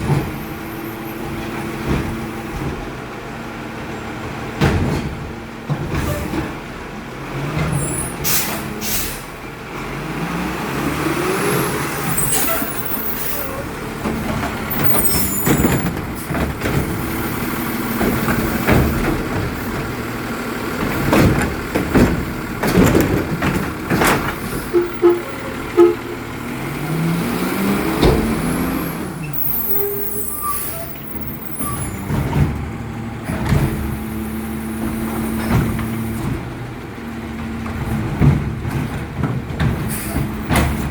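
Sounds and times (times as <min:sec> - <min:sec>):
garbage truck diesel engine revving: 0:06.4 - 0:40.9
air brake hisses: 0:08.2 - 0:09.4
metal clanks and knocks: 0:14.0 - 0:20.1, 0:20.7 - 0:26.4.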